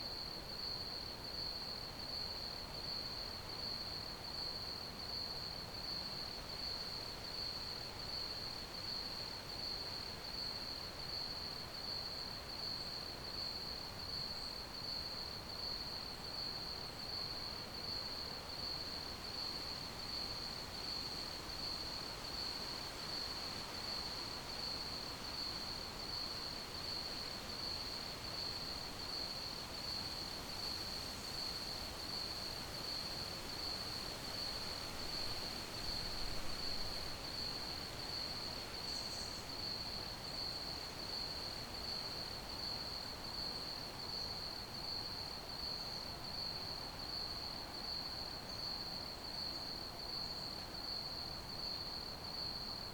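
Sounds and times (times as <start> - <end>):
crickets chirping: 14.1 - 52.9
background hiss: 16.8 - 52.9.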